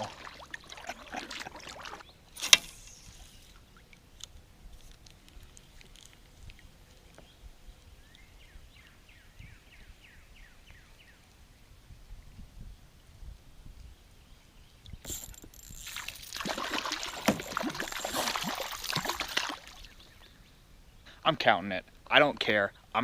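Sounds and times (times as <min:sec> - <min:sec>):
rustling and small clicks: 0:04.2 - 0:07.2.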